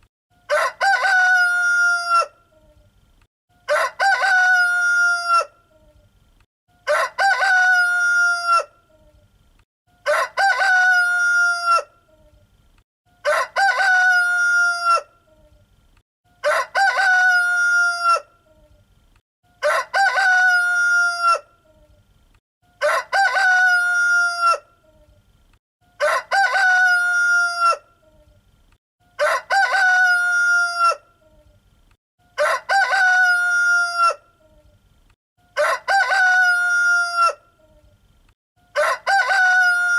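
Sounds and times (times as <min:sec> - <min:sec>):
rooster crowing: 0:00.5 - 0:02.4, 0:03.6 - 0:05.6, 0:06.8 - 0:08.8, 0:10.0 - 0:11.9, 0:13.2 - 0:15.1, 0:16.4 - 0:18.3, 0:19.6 - 0:21.5, 0:22.8 - 0:24.7, 0:25.9 - 0:27.9, 0:29.1 - 0:31.1, 0:32.4 - 0:34.3, 0:35.5 - 0:37.5, 0:38.7 - 0:39.9.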